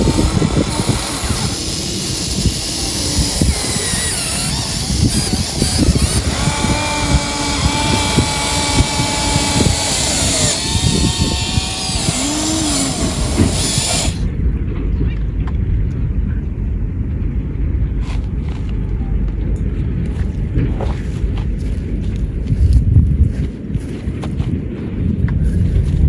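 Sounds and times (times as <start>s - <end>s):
small electric motors whining: 0.0s - 14.3s
gritty scraping and crunching: 0.0s - 14.4s, 18.0s - 19.0s, 20.0s - 26.0s.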